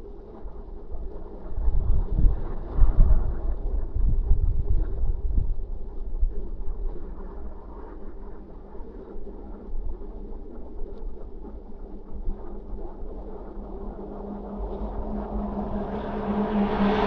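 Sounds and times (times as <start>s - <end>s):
steady low hum: 0.0s - 17.0s
wind buffeting microphone: 0.2s - 17.0s.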